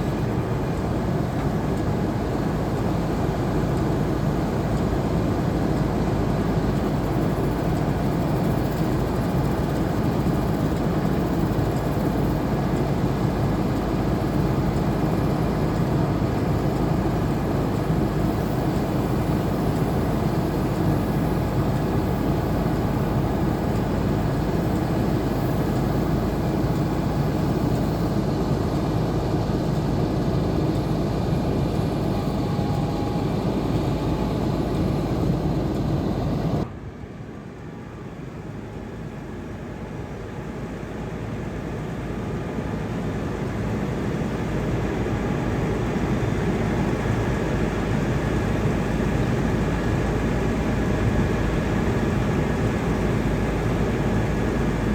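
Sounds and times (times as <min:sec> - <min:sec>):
heavy truck engine running: 0:00.0 - 0:36.7.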